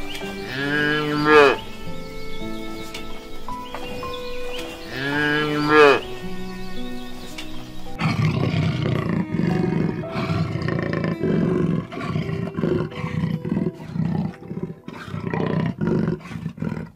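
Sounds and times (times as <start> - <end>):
big cat roaring: 8.0 - 16.9.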